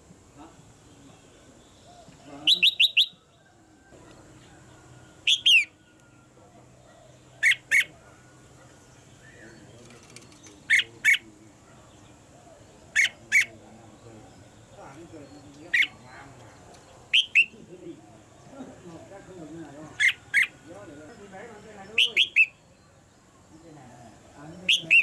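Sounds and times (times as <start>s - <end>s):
bird calling in sharp bursts: 2.4s - 3.2s, 5.2s - 5.8s, 7.4s - 7.9s, 10.6s - 11.3s, 12.9s - 13.6s, 15.7s - 16.0s, 17.1s - 17.6s, 20.0s - 20.6s, 22.0s - 22.6s, 24.7s - 25.0s.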